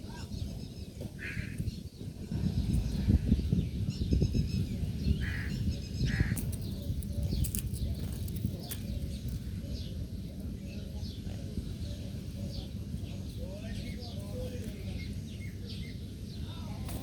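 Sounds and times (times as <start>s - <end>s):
harsh bird calls: 0.0s - 10.0s.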